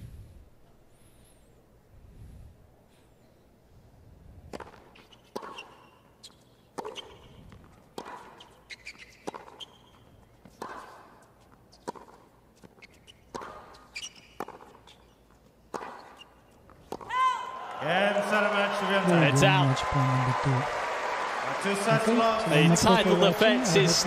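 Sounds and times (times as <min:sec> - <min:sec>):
racket hitting tennis ball: 0:04.5 - 0:05.8, 0:06.7 - 0:15.0, 0:15.7 - 0:17.2.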